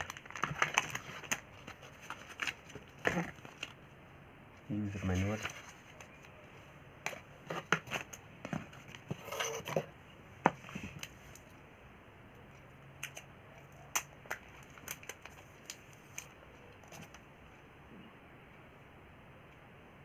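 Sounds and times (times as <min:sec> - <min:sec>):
paper or plastic rustling: 0:00.0 - 0:03.8.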